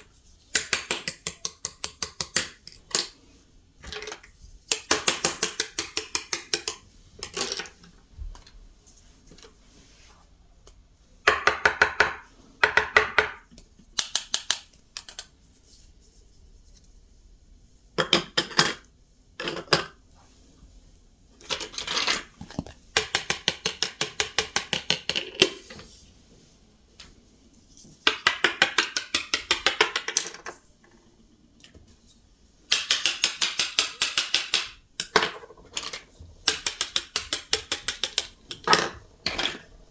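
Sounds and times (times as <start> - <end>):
plastic toy pieces clicking: 0.6 - 3.1, 3.8 - 7.7, 28.1 - 30.4, 32.7 - 39.7.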